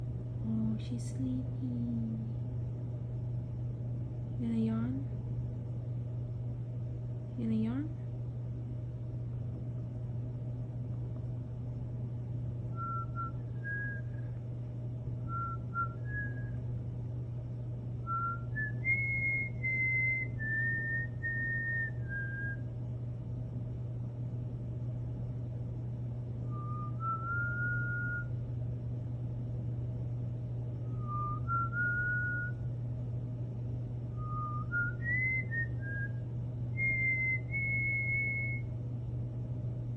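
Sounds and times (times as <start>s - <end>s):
steady low hum: 0.0s - 39.9s
cockatiel whistling: 12.8s - 14.2s, 15.3s - 16.6s, 18.1s - 22.6s, 26.5s - 28.3s, 31.0s - 32.6s, 34.2s - 36.1s, 36.8s - 38.6s.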